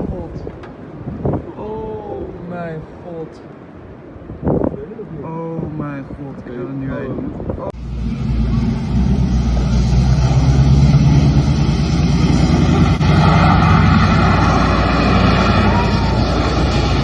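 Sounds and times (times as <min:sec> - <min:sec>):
car engine and road rumble: 0:06.0 - 0:17.0
constant whine: 0:07.7 - 0:17.0.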